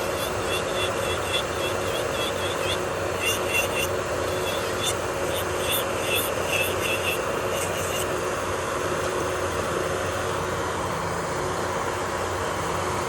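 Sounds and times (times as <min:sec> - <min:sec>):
high-pitched chirps: 0:00.0 - 0:08.1
electric nail drill motor hum: 0:00.0 - 0:09.1.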